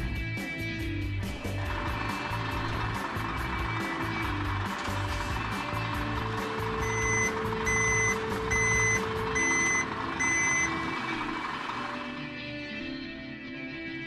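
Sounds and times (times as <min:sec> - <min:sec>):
background music: 0:00.0 - 0:14.0
truck reversing alarm beeping: 0:01.6 - 0:12.4.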